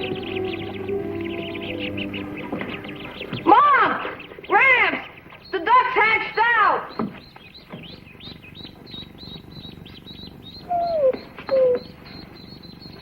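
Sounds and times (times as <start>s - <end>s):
ducklings peeping: 0.0s - 13.0s
dog whining: 10.6s - 12.2s.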